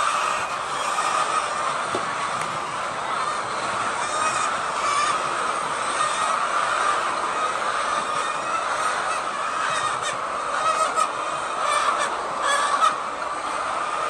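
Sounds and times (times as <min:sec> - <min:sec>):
hens clucking and squawking: 0:00.0 - 0:14.0.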